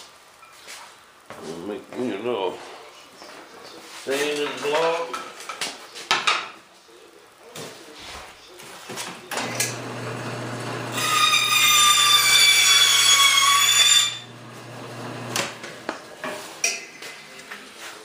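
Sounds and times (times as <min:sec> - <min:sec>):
power saw cutting wood: 0:09.4 - 0:16.0.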